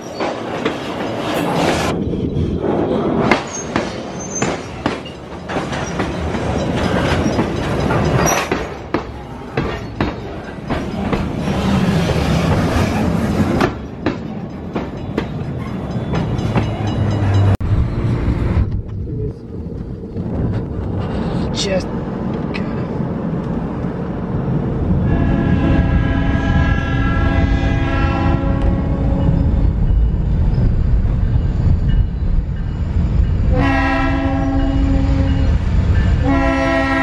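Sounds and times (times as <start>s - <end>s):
train wheels clattering on rails: 0.0s - 17.6s
car road noise: 16.3s - 25.0s.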